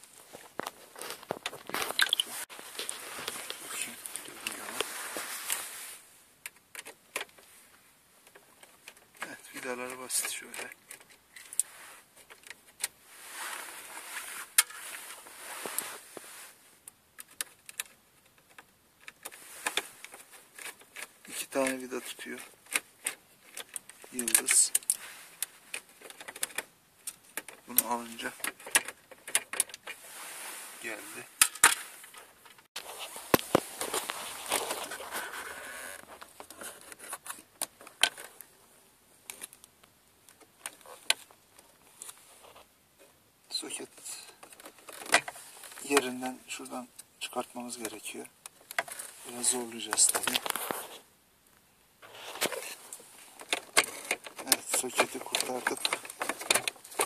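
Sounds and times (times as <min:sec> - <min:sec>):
rubbing and scraping: 0:00.2 - 0:06.0, 0:08.3 - 0:18.0, 0:19.0 - 0:38.4, 0:47.7 - 0:51.1, 0:52.0 - 0:57.0
plastic parts clicking and knocking: 0:08.2 - 0:11.6, 0:16.9 - 0:30.0, 0:31.4 - 0:32.6, 0:36.0 - 0:38.4, 0:44.2 - 0:46.2, 0:47.8 - 0:49.0, 0:52.4 - 0:57.0.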